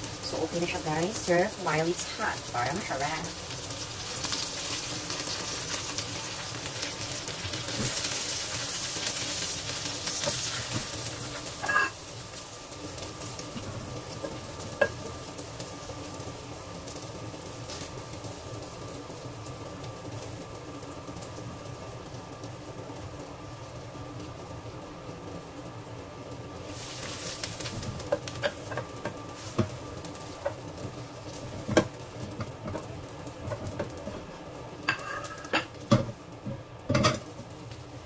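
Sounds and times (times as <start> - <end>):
food sizzling in hot oil: 0.0 - 38.0
utensils knocking on cookware: 36.9 - 37.3.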